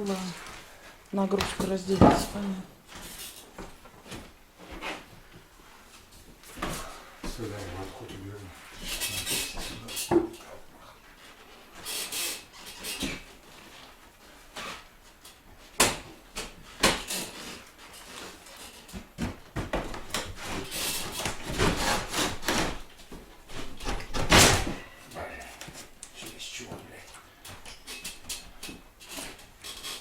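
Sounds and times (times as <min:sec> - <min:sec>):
scraping and rubbing: 0:07.4 - 0:10.0, 0:20.3 - 0:24.0.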